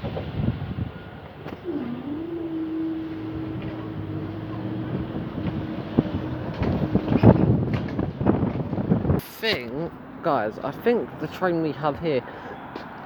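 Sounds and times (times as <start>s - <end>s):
electric train running past: 0.0s - 9.2s.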